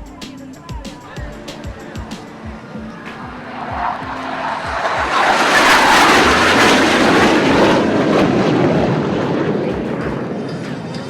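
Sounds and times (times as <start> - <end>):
jet aircraft passing overhead: 1.8 - 11.0.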